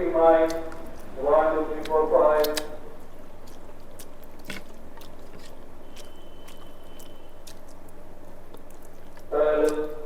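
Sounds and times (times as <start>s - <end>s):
steady low hum: 0.0s - 10.0s
person chewing food: 0.4s - 10.0s
wet mouth clicks: 3.4s - 9.9s.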